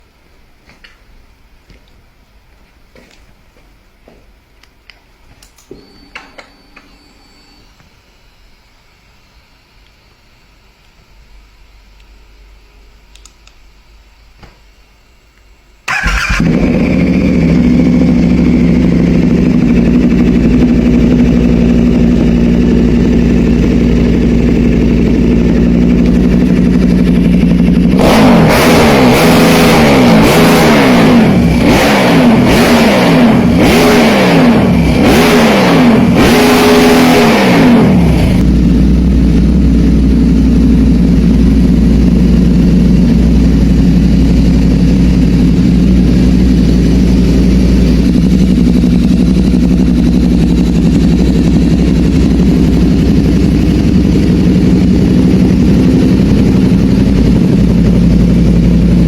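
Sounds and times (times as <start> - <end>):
engine idling and revving: 15.9 - 59.0.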